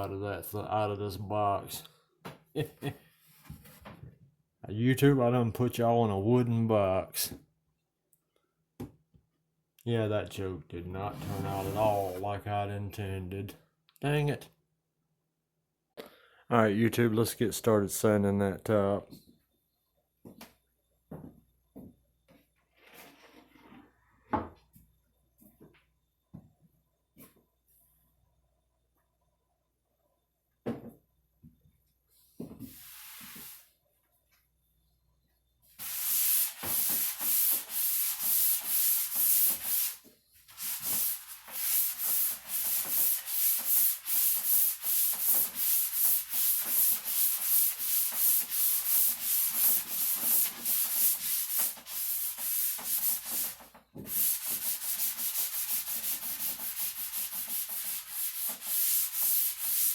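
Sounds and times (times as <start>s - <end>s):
sandpaper rasping on wood: 35.8s - 59.9s.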